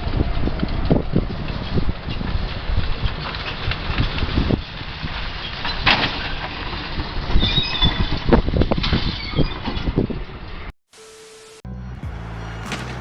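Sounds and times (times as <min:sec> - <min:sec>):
motor vehicle running: 0:11.7 - 0:13.0
sharp crack: 0:12.6 - 0:13.0.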